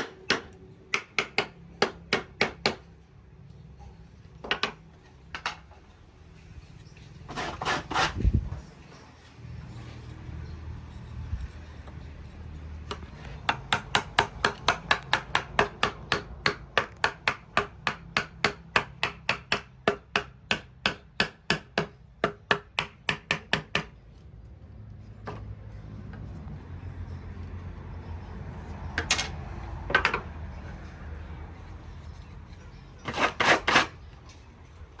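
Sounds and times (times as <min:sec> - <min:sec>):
hammer striking wood: 0:00.0 - 0:02.8, 0:12.9 - 0:23.9.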